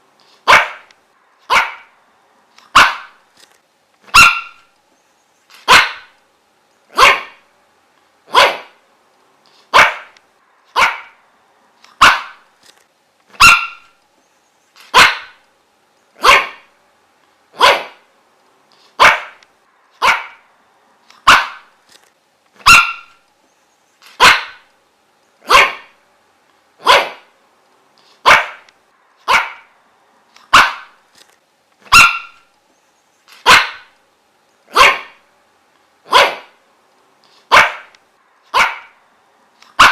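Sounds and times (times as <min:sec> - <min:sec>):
dog barking: 0:00.4 - 0:00.9, 0:01.5 - 0:02.0, 0:02.7 - 0:03.2, 0:04.1 - 0:04.7, 0:05.6 - 0:06.2, 0:06.9 - 0:07.4, 0:08.3 - 0:08.8, 0:09.7 - 0:11.2, 0:12.0 - 0:12.4, 0:13.4 - 0:14.0, 0:14.9 - 0:15.4, 0:16.2 - 0:16.7, 0:17.6 - 0:18.1, 0:19.0 - 0:19.4, 0:20.0 - 0:20.5, 0:21.2 - 0:21.7, 0:22.6 - 0:23.2, 0:24.2 - 0:24.7, 0:25.4 - 0:26.0, 0:26.8 - 0:27.3, 0:28.2 - 0:29.7, 0:30.5 - 0:31.0, 0:31.9 - 0:32.4, 0:33.4 - 0:33.9, 0:34.7 - 0:35.2, 0:36.1 - 0:36.6, 0:37.5 - 0:37.9, 0:38.5 - 0:39.0.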